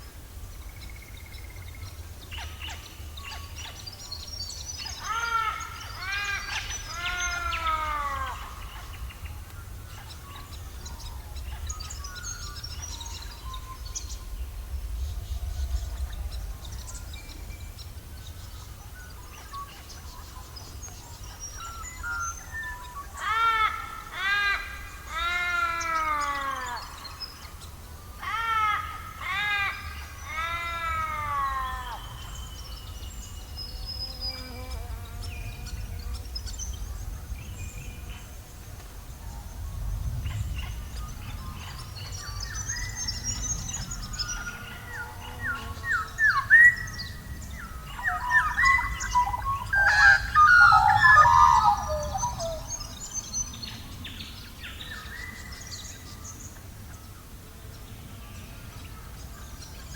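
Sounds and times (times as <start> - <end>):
small birds chirping: 0.0 - 59.9
bird drawn-out rising falling calls: 5.0 - 9.1, 28.2 - 32.4, 45.8 - 53.5
steady low rumble: 8.4 - 21.2, 35.6 - 44.6.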